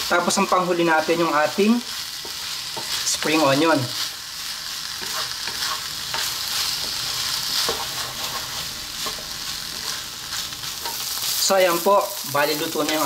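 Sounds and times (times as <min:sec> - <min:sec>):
rice sizzling in a wok: 0:00.0 - 0:13.0
spatula scraping and tapping pan: 0:02.2 - 0:03.1, 0:05.0 - 0:10.0, 0:10.7 - 0:11.2.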